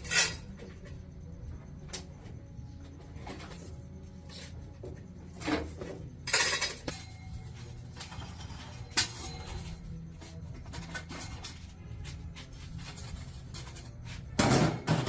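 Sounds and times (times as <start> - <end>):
metal objects clinking and scraping: 0.0 - 1.0, 5.3 - 15.0
steady low hum: 0.0 - 15.0.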